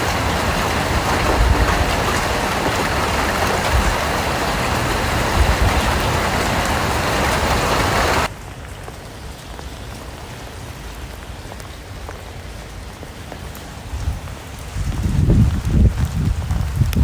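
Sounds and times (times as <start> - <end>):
raindrops tapping: 0.0 - 10.2
heavy rain pouring: 0.0 - 17.0.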